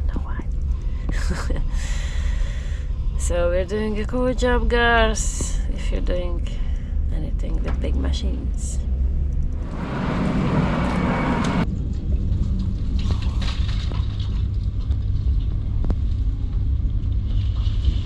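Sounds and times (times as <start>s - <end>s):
heavy engine rumbling: 0.0s - 13.8s
loud rushing noise: 9.6s - 11.7s.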